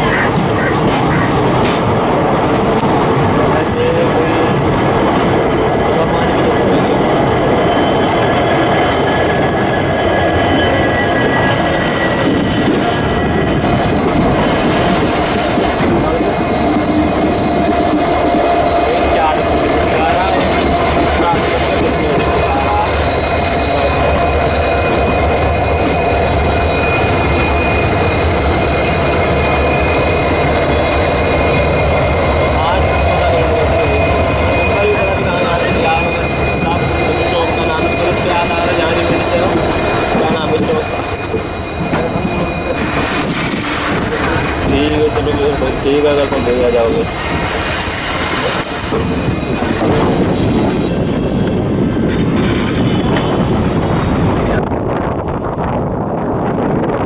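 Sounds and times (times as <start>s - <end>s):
train rumbling and rattling on track: 0.0s - 57.0s
wind on microphone: 47.0s - 57.0s.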